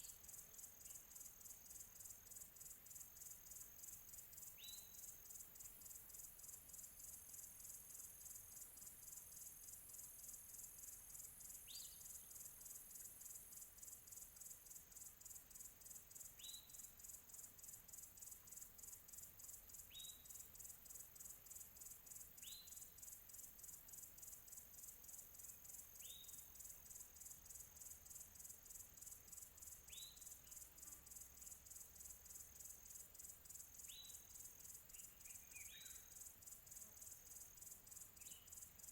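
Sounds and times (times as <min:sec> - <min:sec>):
crickets chirping: 0:00.0 - 0:38.9
bird chirping: 0:34.9 - 0:36.2, 0:38.2 - 0:38.6.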